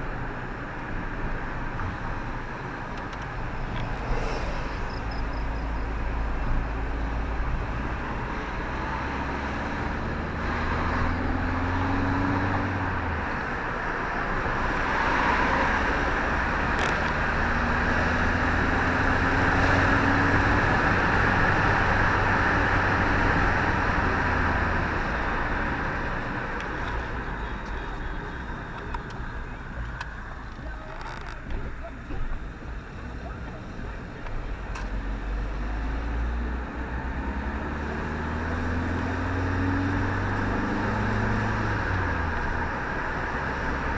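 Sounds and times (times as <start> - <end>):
car engine accelerating: 0.0 - 43.9
road noise: 0.0 - 43.9.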